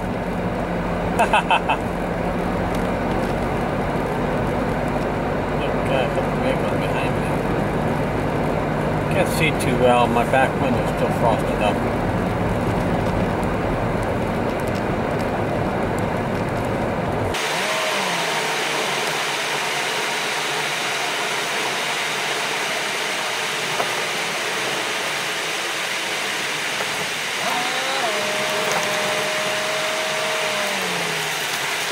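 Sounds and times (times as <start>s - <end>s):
road rumble inside car: 0.0s - 31.9s
loud rushing hiss: 17.3s - 31.9s.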